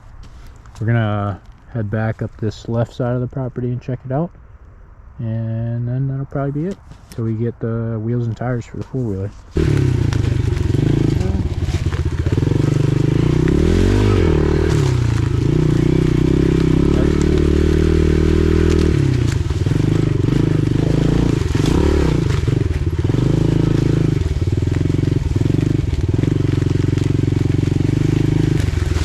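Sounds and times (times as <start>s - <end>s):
pit bike engine revving: 9.5s - 29.0s.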